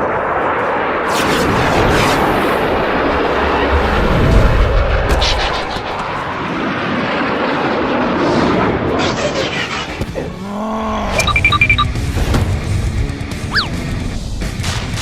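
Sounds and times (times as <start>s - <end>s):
rush of vehicle-like noise: 0.0s - 10.4s
short high beeps: 11.2s - 11.9s.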